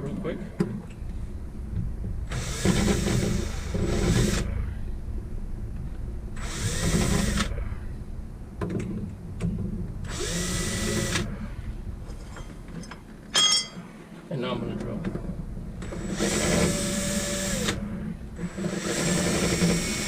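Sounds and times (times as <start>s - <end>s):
steady low hum: 0.0s - 20.0s
power drill drilling: 2.3s - 4.6s, 6.4s - 7.8s, 10.1s - 11.4s, 15.8s - 20.0s.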